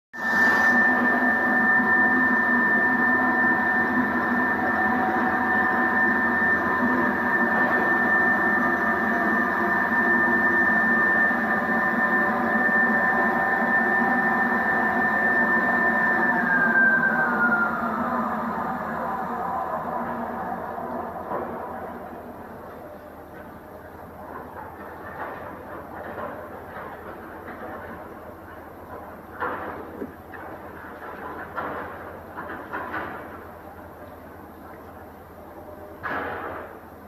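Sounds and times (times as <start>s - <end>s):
cutting machine high whine: 0.2s - 22.6s.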